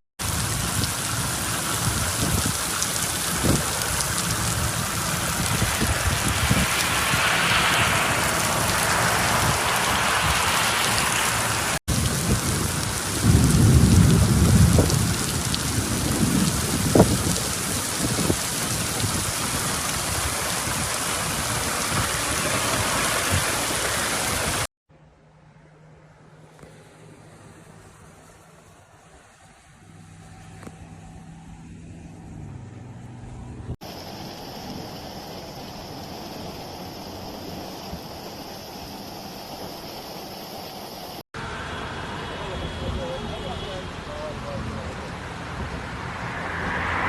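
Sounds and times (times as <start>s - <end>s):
heavy rain pouring: 0.2s - 24.7s, 33.8s - 41.2s
thunder rumble: 0.2s - 24.7s.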